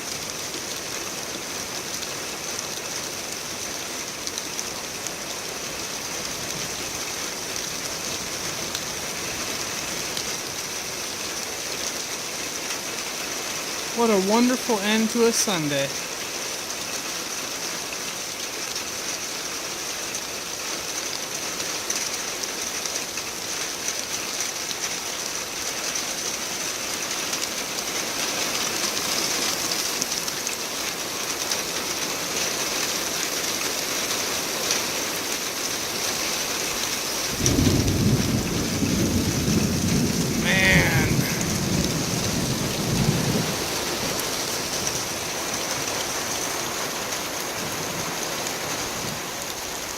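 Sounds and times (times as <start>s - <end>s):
steady rain falling: 0.0s - 49.9s
low rumble of thunder: 37.2s - 45.0s.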